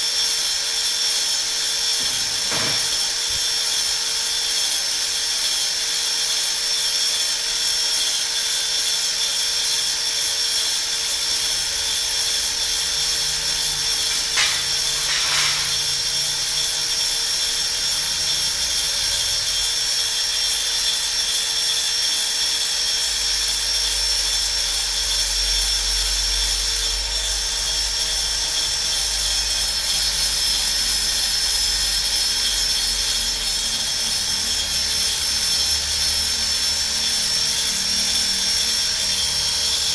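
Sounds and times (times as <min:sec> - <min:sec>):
cutter motor high whine: 0:01.2 - 0:05.1, 0:08.2 - 0:21.8
cutter scraping: 0:01.9 - 0:03.9, 0:11.3 - 0:17.4.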